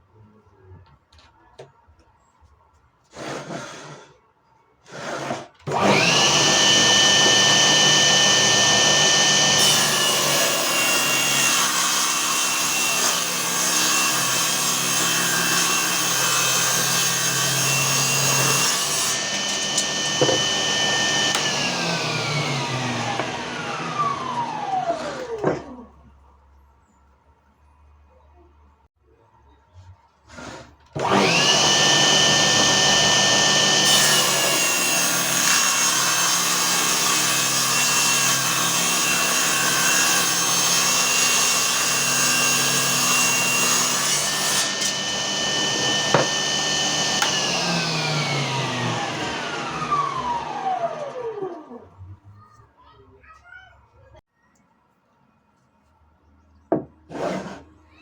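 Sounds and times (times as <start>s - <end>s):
saw blade cutting wood: 4.8s - 25.5s, 30.3s - 51.1s, 57.1s - 57.7s
circular saw whining: 5.7s - 25.4s, 31.0s - 51.8s.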